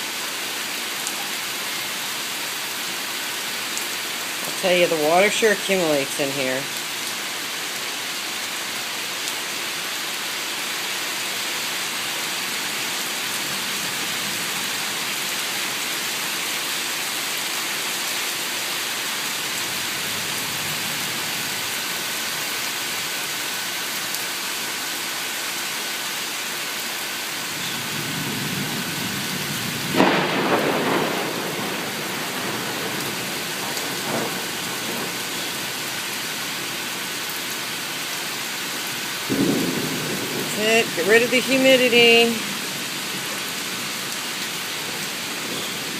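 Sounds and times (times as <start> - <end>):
steady rain falling: 0.0 - 45.9
thunder rumbling: 27.8 - 35.4, 39.3 - 44.0.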